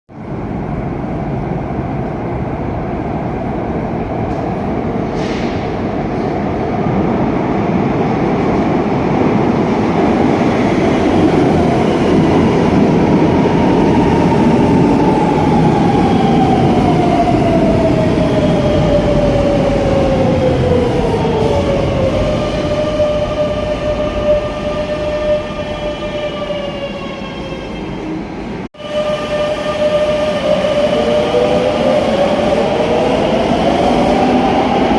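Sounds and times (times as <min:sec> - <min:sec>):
train wheels rumbling on rail: 0:03.2 - 0:26.0.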